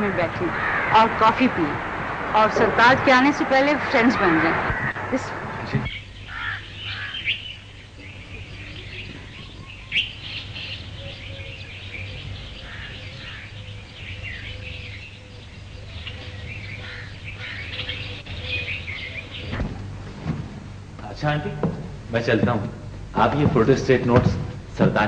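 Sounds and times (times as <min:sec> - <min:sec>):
steady low hum: 0:00.0 - 0:25.0
small birds chirping: 0:03.6 - 0:19.9.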